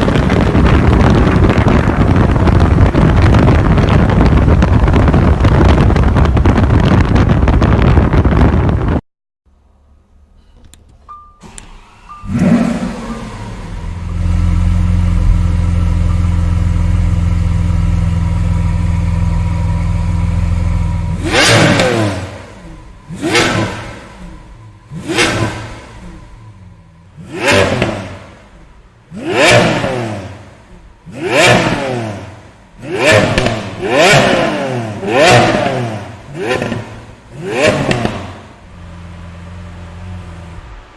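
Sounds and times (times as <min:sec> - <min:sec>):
engine throttle blips: 0:11.1 - 0:40.9
car engine idling: 0:11.4 - 0:40.9.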